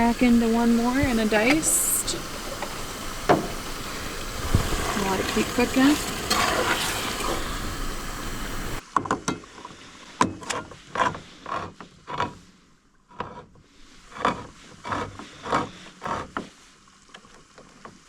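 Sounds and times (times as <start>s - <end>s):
can opener clicking and creaking: 0.0s - 8.5s
food sizzling in pot: 0.0s - 8.8s.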